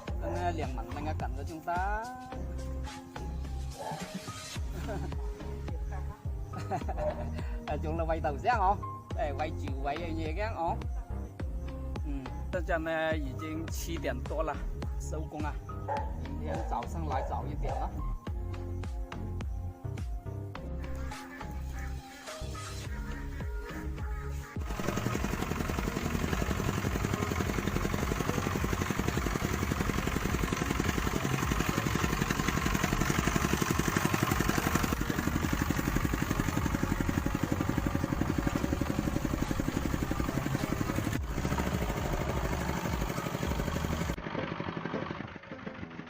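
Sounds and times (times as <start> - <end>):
engine running: 4.5 - 8.4, 22.5 - 46.0.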